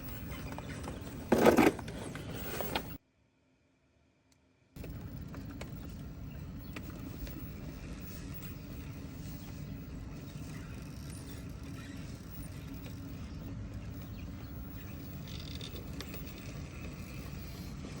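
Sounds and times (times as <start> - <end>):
electric motor and gears running: 4.8 - 18.0.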